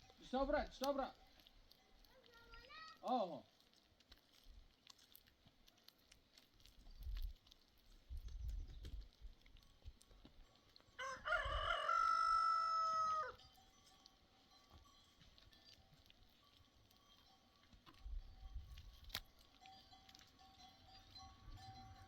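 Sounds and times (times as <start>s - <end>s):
rooster crowing: 11.0s - 13.4s.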